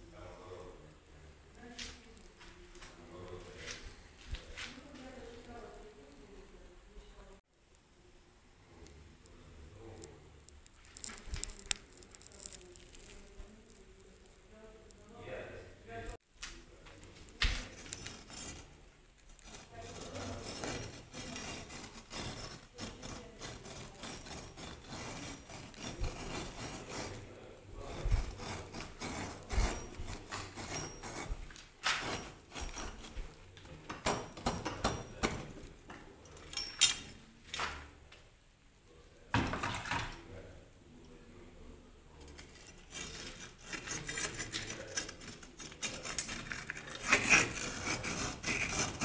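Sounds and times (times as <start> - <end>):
scraping and rubbing of bricks: 10.7 - 14.1, 17.1 - 35.9, 42.2 - 49.0.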